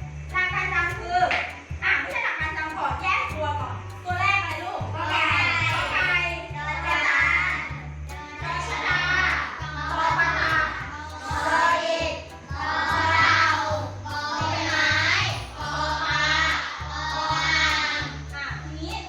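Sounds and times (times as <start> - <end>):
backing music with bass beat: 0.0 - 19.0
children singing: 4.0 - 19.0.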